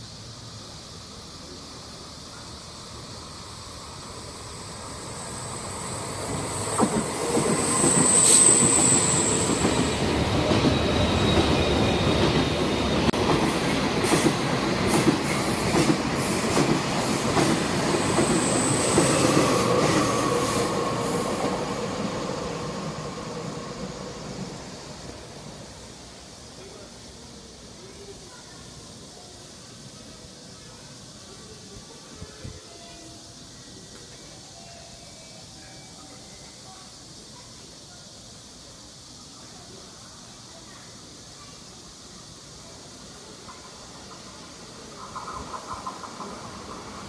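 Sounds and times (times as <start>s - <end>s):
train wheels rolling: 0.4s - 26.5s, 43.0s - 47.0s
wheel squeal: 6.8s - 9.8s.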